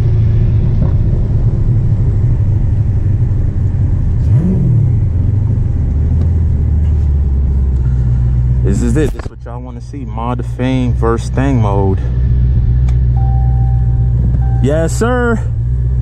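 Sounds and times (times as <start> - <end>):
car engine deep rumble: 0.0 - 16.0
engine rev blip: 12.8 - 15.3.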